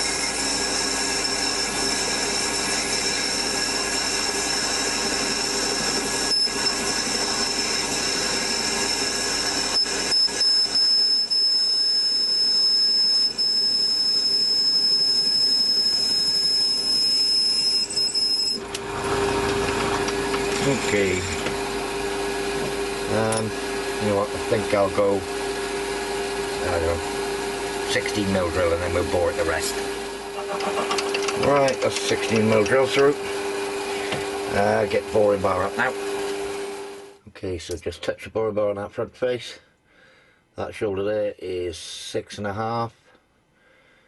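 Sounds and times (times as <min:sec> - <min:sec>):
metal lathe whining: 0:00.0 - 0:37.1
drill clicks: 0:30.5 - 0:33.0.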